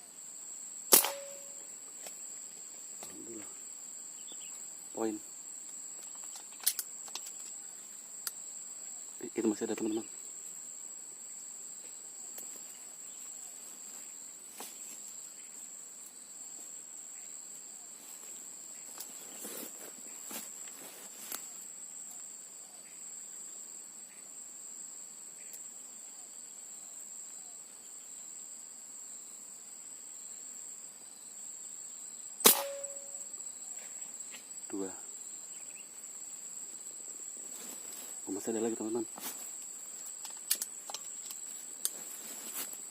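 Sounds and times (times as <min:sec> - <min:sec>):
sharp air rifle shot: 0:00.9 - 0:01.6, 0:32.4 - 0:33.2
high-pitched insect drone: 0:32.0 - 0:36.1.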